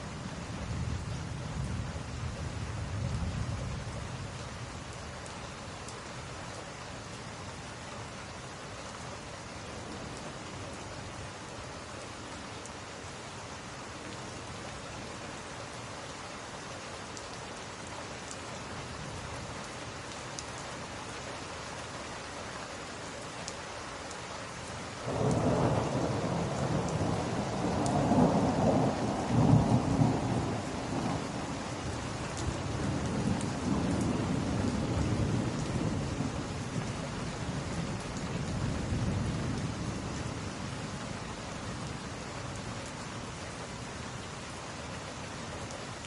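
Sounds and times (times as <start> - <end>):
steady rain: 0.0 - 46.0
thunder rumbling: 25.1 - 36.9.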